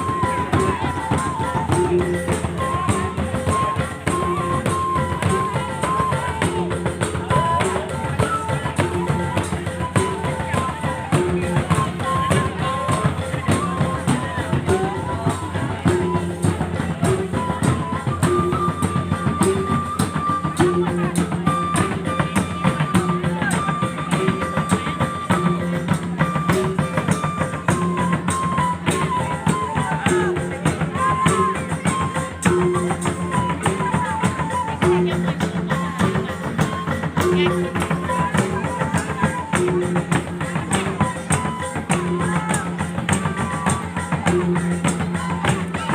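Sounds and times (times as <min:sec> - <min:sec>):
rapid drumming on tuned drums: 0:00.0 - 0:45.9.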